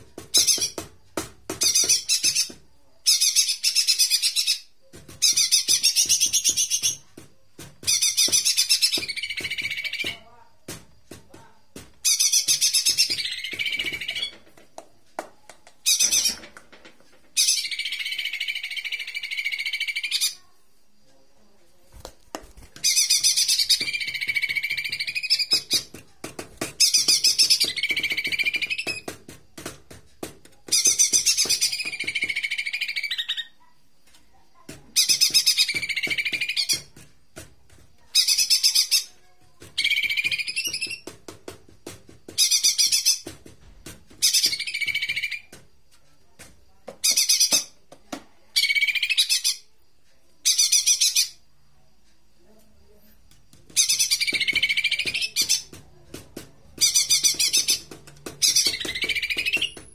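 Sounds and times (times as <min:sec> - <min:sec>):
bird song recording chattering: 0:00.3 - 0:00.8, 0:01.6 - 0:07.1, 0:07.8 - 0:10.4, 0:12.0 - 0:14.4, 0:15.8 - 0:16.5, 0:17.3 - 0:20.5, 0:22.7 - 0:26.0, 0:26.7 - 0:29.1, 0:30.6 - 0:33.8, 0:34.9 - 0:37.0, 0:38.0 - 0:41.1, 0:42.3 - 0:43.3, 0:44.2 - 0:45.5, 0:47.0 - 0:47.8, 0:48.5 - 0:49.8, 0:50.4 - 0:51.5, 0:53.7 - 0:55.8, 0:56.7 - 0:59.9.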